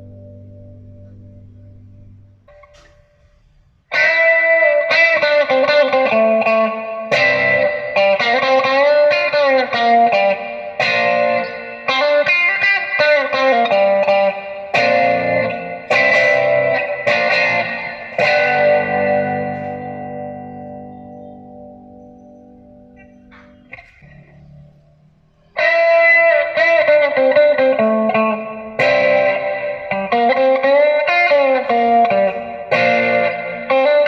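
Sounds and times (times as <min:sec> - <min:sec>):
electric guitar chords and notes: 0:00.0 - 0:34.0.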